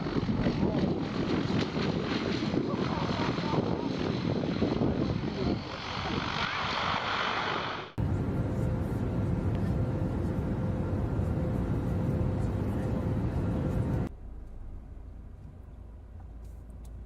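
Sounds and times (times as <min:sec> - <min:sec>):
low vehicle rumble: 0:08.0 - 0:17.0.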